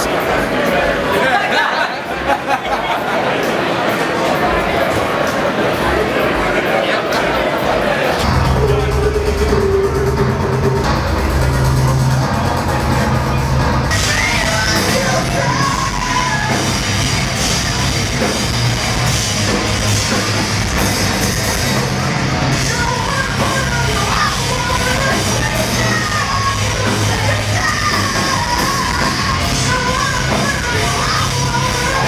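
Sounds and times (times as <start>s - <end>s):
singer shouting and singing: 5.7s - 11.8s, 13.9s - 32.0s
live heavy rock band: 7.7s - 32.0s.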